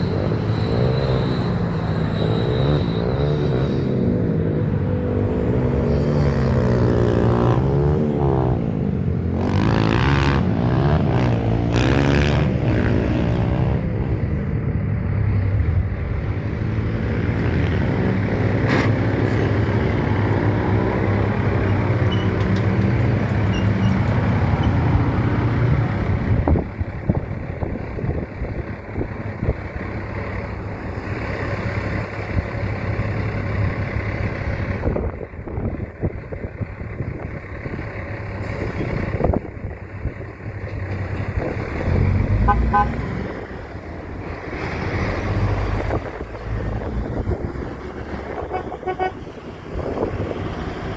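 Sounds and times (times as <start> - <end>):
road and traffic rumble: 0.0 - 50.9
truck engine running: 13.8 - 50.9.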